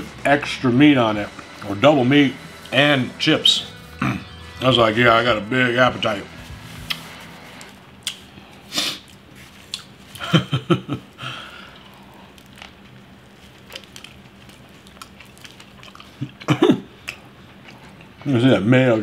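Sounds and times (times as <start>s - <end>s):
person chewing with wet smacks: 8.0s - 8.4s, 9.0s - 10.3s, 11.7s - 18.3s.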